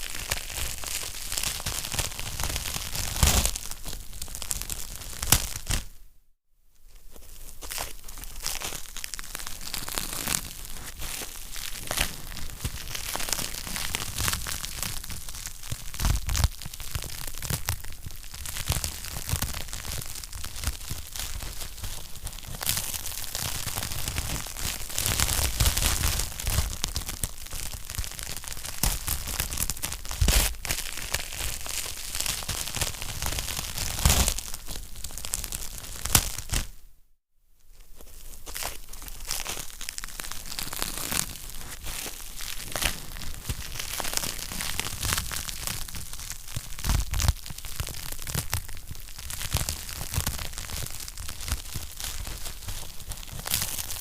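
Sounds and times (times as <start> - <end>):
wood fire crackling and popping: 11.5 - 36.7, 39.4 - 54.0.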